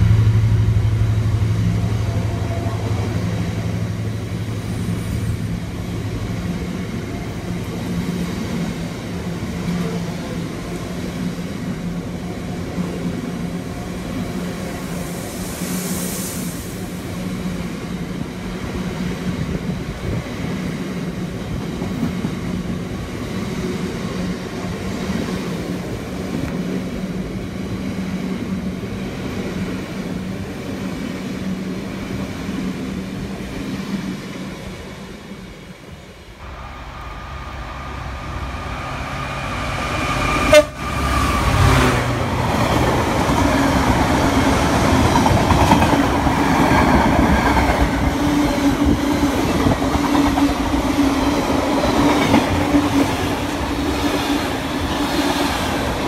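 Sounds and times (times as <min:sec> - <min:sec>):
locomotive horn: 0:40.3 - 0:42.0.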